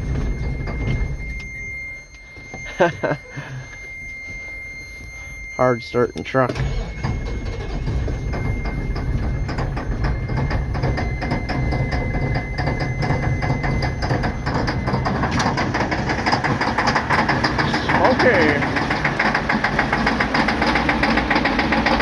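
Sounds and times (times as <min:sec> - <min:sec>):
diesel engine cranking and starting: 0:00.0 - 0:22.0
high warning buzzer: 0:00.0 - 0:22.0.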